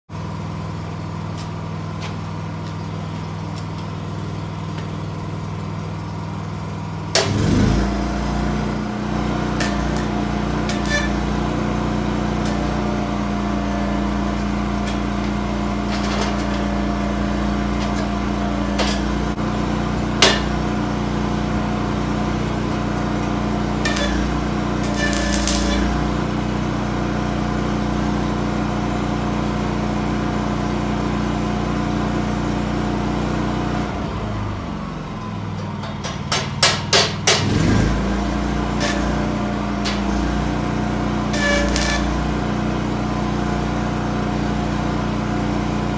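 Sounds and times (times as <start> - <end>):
machine hum: 0.2 - 28.3, 37.5 - 45.9.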